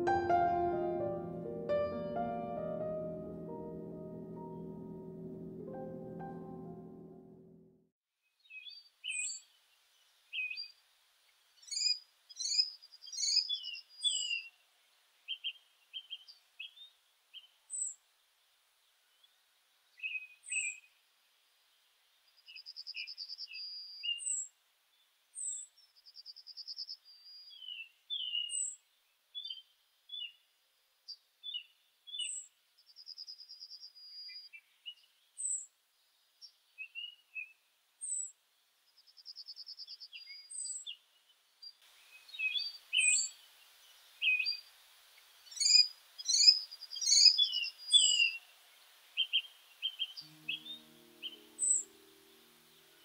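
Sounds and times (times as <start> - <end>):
faint hiss: 8.8 - 23.4, 37.6 - 53.0
songbirds singing: 45.4 - 48.5.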